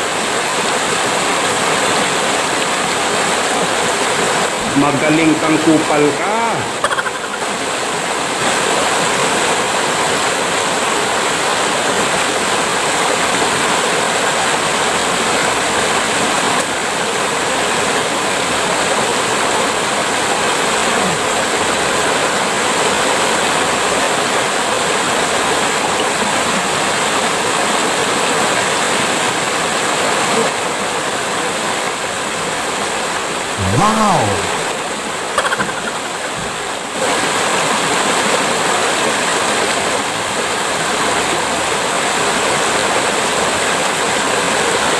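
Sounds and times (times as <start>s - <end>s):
running water rushing: 0.0s - 44.9s.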